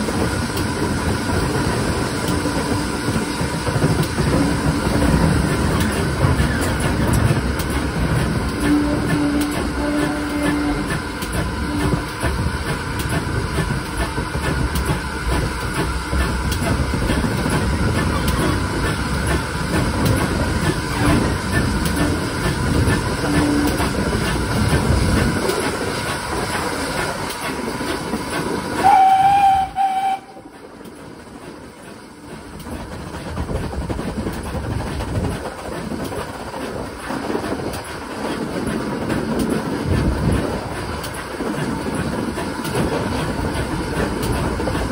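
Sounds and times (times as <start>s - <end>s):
steam train rumbling: 0.0s - 44.9s
wheels clicking over rail joints: 0.0s - 44.9s
steam whistle: 8.6s - 11.0s, 23.2s - 23.9s, 28.8s - 30.5s.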